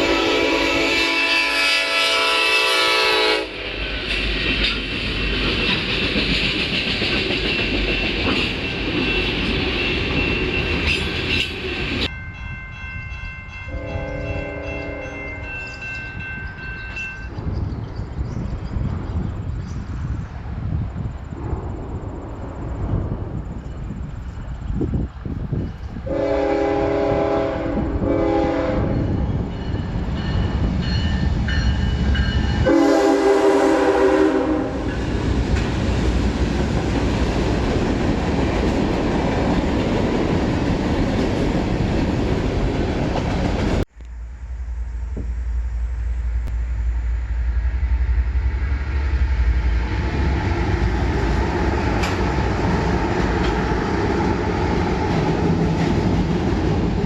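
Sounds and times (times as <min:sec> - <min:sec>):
train horn blowing: 0:00.0 - 0:03.8, 0:13.7 - 0:15.8, 0:26.0 - 0:29.4, 0:32.6 - 0:35.0
train wheels rumbling on rail: 0:00.0 - 0:57.0.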